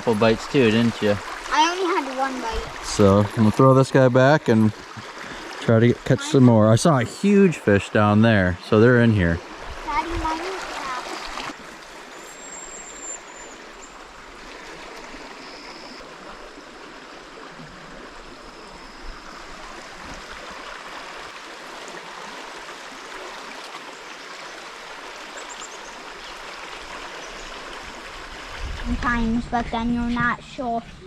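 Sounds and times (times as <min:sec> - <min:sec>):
river babbling over its bed: 0:00.0 - 0:31.0
high chirps: 0:12.0 - 0:14.0.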